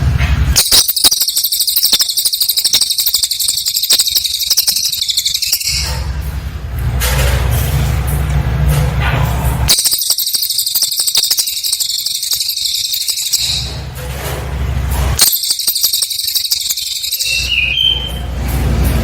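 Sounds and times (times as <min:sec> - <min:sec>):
high-pitched bird song: 0:00.6 - 0:06.2, 0:09.7 - 0:13.9, 0:15.2 - 0:18.4.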